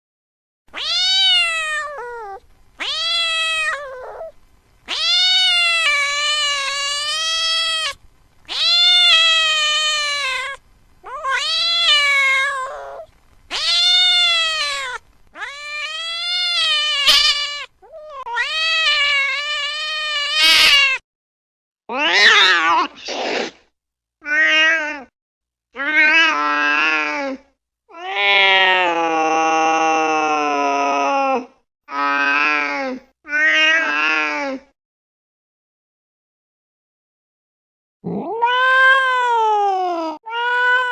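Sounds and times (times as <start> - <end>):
cat meowing: 0.7 - 21.0, 21.9 - 23.0, 38.1 - 40.9.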